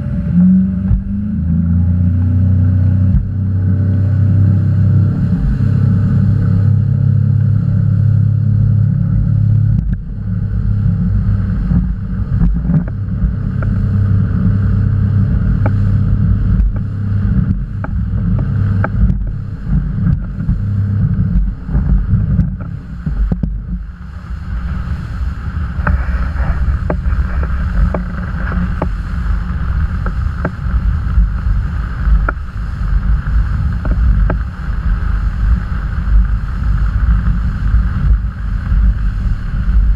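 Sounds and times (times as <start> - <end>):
motorboat engine running: 0.0 - 39.9
wind on microphone: 0.0 - 39.9
hull knocking on waves: 3.0 - 3.6, 9.2 - 39.9.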